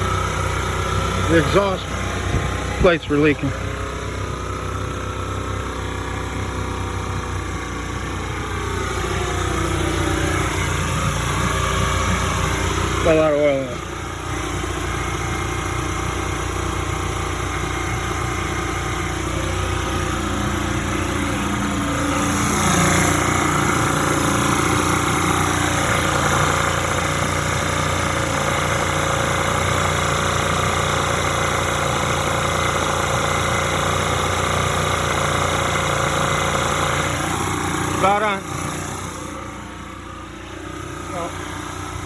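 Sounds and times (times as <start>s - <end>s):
two-stroke engine running: 0.0s - 42.0s.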